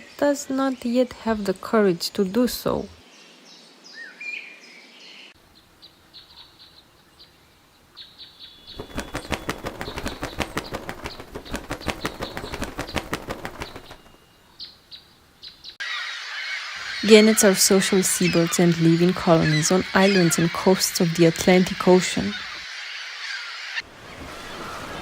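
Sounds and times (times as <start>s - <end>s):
bird wings flapping: 8.7s - 14.5s.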